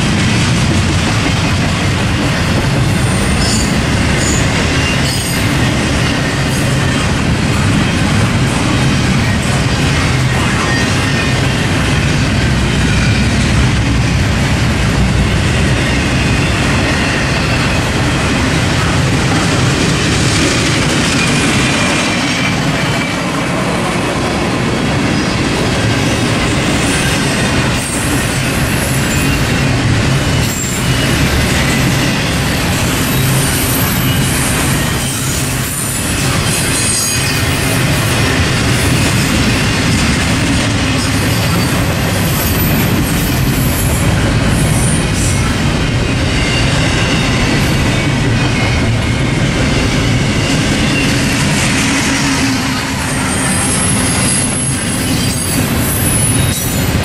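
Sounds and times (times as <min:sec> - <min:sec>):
train cars rumbling on rails: 0:00.0 - 0:57.0
high-pitched wheel squeals: 0:52.2 - 0:56.9.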